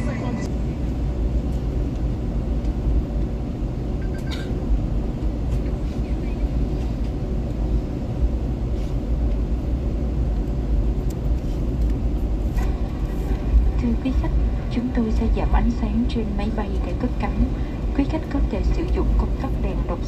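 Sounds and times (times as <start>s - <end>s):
airliner cabin rumble: 0.0s - 20.0s.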